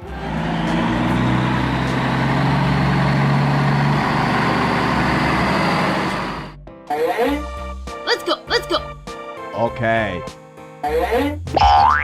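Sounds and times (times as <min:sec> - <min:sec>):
low engine hum: 0:00.0 - 0:06.6
train rumbling: 0:00.0 - 0:06.6.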